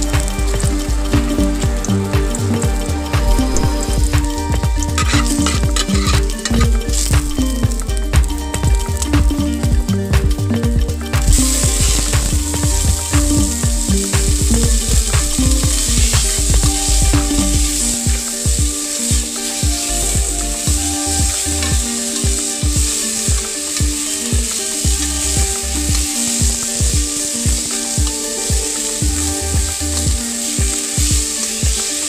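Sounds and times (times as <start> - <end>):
beans sizzling in a hot pan: 0.0 - 32.0
spatula scraping a pan: 5.0 - 7.1.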